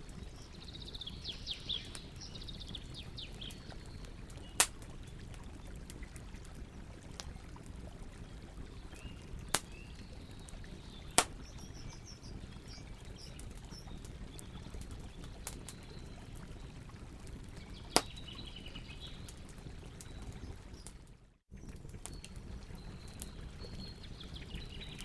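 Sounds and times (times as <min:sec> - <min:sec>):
birds chirping faintly: 0:00.0 - 0:05.9, 0:08.2 - 0:25.0
campfire crackling: 0:00.0 - 0:25.0
sharp pops from burning wood: 0:04.4 - 0:04.9, 0:09.5 - 0:09.8, 0:11.2 - 0:11.6, 0:17.9 - 0:18.2.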